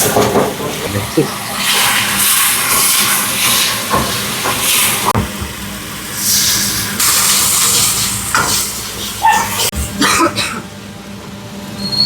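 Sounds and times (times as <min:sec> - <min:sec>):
food hissing on a stove: 0:01.0 - 0:05.1, 0:05.8 - 0:09.7.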